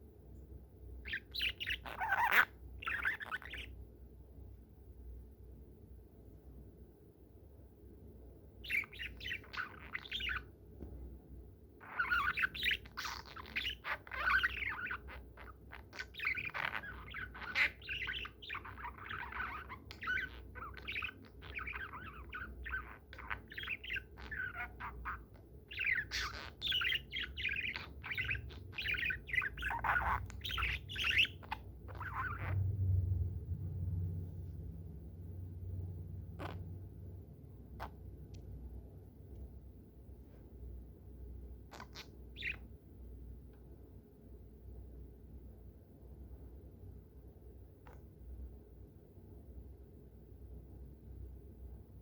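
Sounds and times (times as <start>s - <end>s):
budgerigar chattering: 1.1s - 3.7s, 8.6s - 10.5s, 11.8s - 32.6s, 41.7s - 42.6s.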